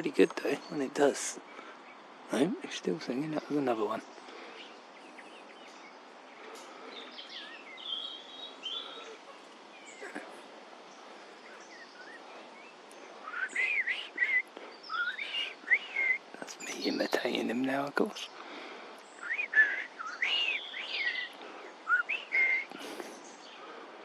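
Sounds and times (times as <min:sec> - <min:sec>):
outdoor background hiss: 0:00.0 - 0:24.0
blackbird singing soft subsong: 0:06.9 - 0:10.2, 0:10.9 - 0:18.3, 0:19.0 - 0:23.6
person whistling birdsong: 0:13.2 - 0:17.1, 0:19.2 - 0:23.6.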